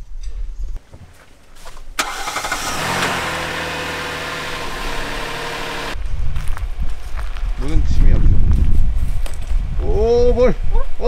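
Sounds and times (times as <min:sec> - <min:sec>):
car engine cranking and idling: 0:02.0 - 0:06.0.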